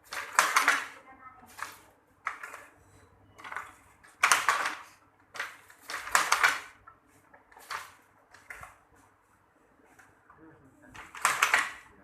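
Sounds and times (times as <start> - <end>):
hand loom clattering: 0.0 - 1.0, 3.4 - 6.8, 11.0 - 11.8.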